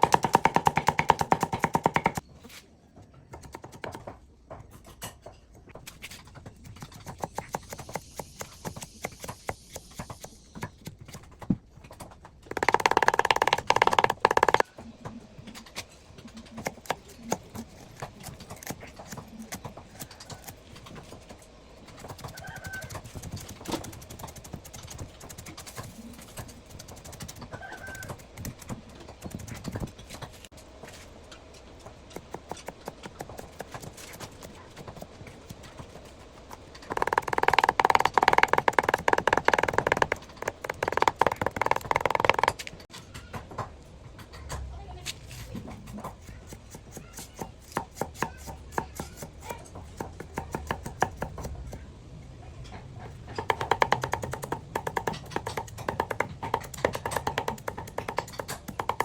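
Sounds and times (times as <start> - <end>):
knocking of spices being prepared: 12.5 - 14.6, 36.9 - 42.6, 53.4 - 59.0.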